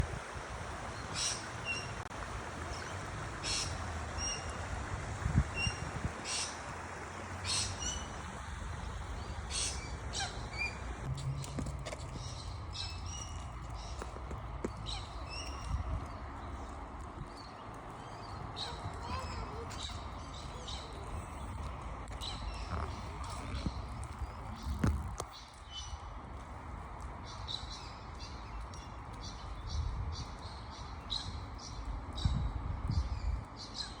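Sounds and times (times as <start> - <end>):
low rumbles: 0.0 - 33.6
low outdoor rush: 0.0 - 34.0
birds chirping: 0.9 - 4.7, 5.4 - 26.3.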